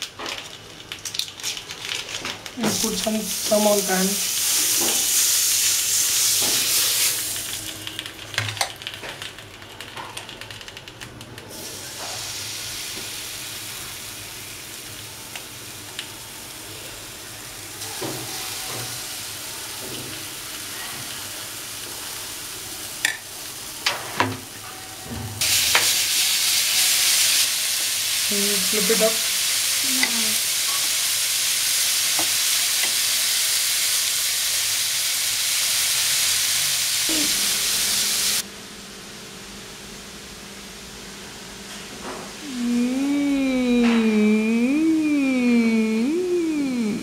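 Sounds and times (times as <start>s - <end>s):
butter sizzling in frying pan: 0.0s - 10.0s, 11.7s - 24.6s, 25.4s - 38.4s.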